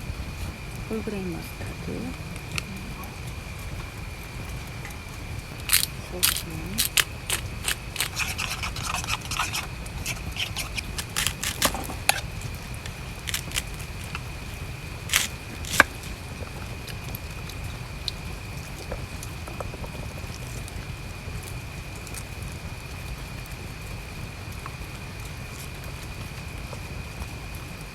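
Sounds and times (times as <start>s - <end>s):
steady rain: 0.0s - 8.0s, 10.8s - 27.9s
containers and utensils clicking: 5.7s - 16.0s.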